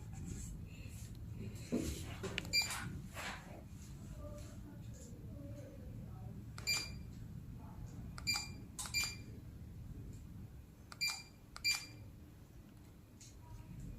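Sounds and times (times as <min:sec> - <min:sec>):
short electronic beeps: 0:06.6 - 0:07.0, 0:08.2 - 0:09.3, 0:11.0 - 0:12.0.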